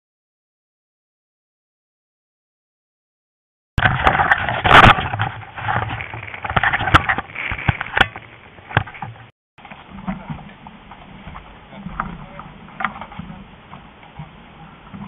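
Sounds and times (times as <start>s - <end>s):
knocks and clicks from boat: 3.8s - 15.0s
rushing wind: 3.8s - 15.0s
water noise: 3.8s - 15.0s.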